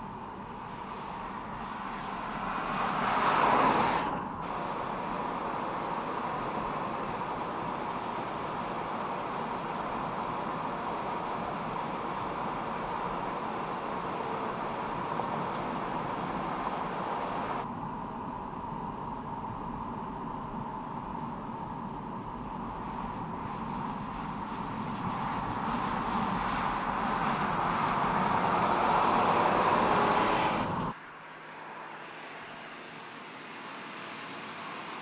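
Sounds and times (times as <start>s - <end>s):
road and wind noise: 0.0s - 35.0s
vehicle passing close: 2.2s - 17.6s, 25.4s - 30.9s.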